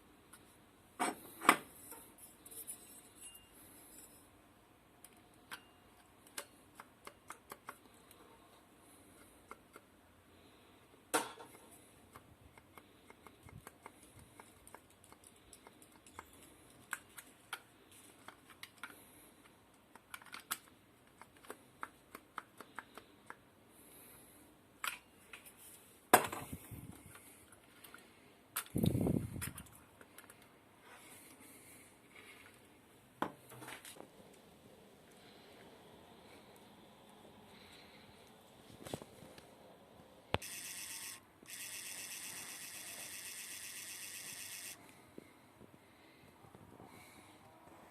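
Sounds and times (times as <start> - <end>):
small parts and tools clicking: 5.0 - 8.3, 9.1 - 10.0, 11.2 - 23.5, 26.4 - 30.5, 40.4 - 44.8.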